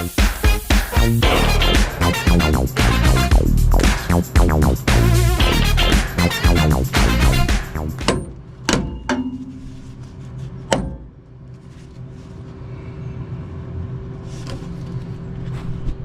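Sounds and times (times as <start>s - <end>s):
sharp knocks: 7.9s - 9.8s, 10.7s - 11.2s
low mechanical hum: 8.1s - 16.0s.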